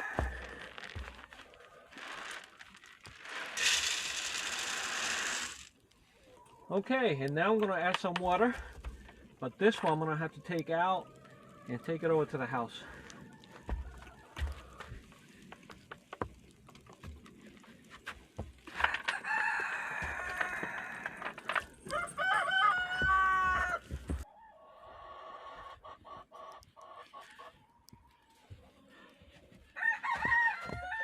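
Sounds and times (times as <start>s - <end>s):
rooster crowing: 0.0s - 0.7s, 13.0s - 14.8s, 18.8s - 25.4s, 29.8s - 31.0s
faint hen clucking: 21.9s - 31.0s.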